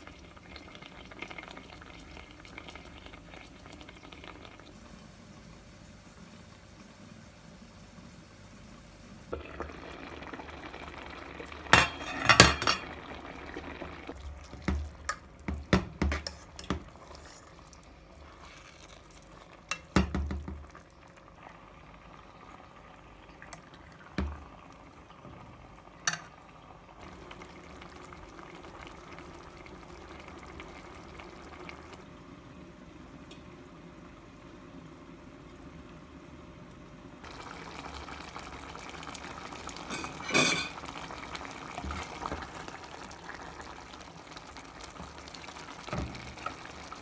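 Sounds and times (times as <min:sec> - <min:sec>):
curry sizzling: 0:00.0 - 0:47.0
metal spoon scraping a pan: 0:11.8 - 0:12.8, 0:16.1 - 0:17.6.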